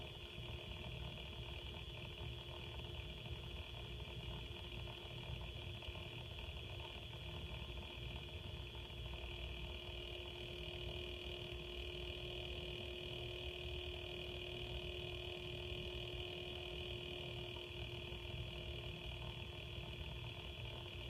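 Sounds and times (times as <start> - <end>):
water pump high-pitched whine: 8.2 - 21.0.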